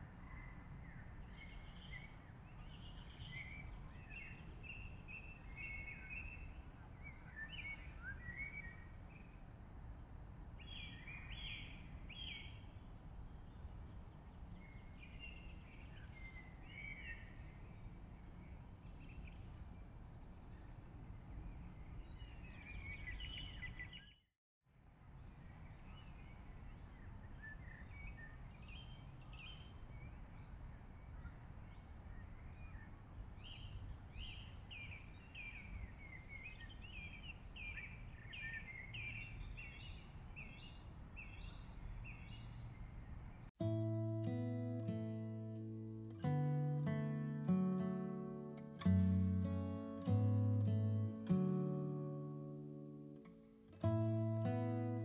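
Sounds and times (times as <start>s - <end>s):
birds chirping: 0.0s - 9.6s, 10.6s - 24.2s, 25.2s - 43.6s.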